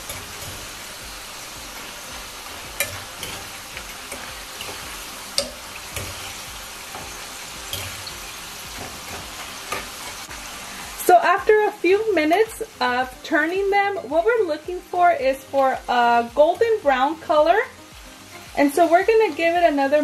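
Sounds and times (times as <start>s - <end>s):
tortillas sizzling in hot oil: 0.0s - 20.0s
metal utensil clicking on pan: 2.8s - 7.0s, 7.7s - 8.1s, 8.8s - 10.2s.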